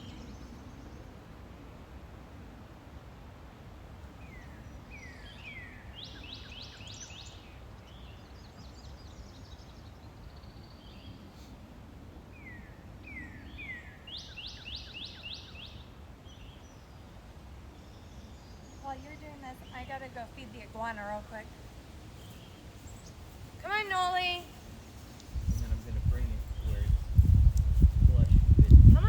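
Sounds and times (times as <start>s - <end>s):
songbird singing: 0.0s - 1.3s, 4.0s - 11.4s, 12.3s - 29.0s
low background noise: 0.0s - 29.0s.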